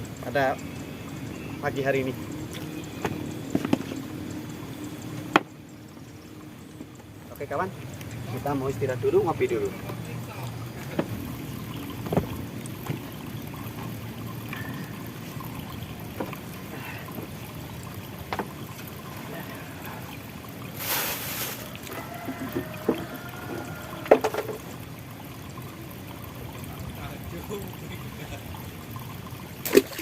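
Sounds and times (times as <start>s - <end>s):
water trickling and pouring: 0.0s - 30.0s
short rush of noise: 20.8s - 21.7s.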